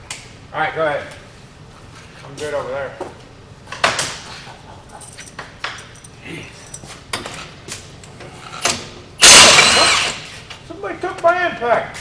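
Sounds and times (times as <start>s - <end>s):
metal tools clinking: 4.9s - 7.0s
impact wrench burst: 9.2s - 10.4s.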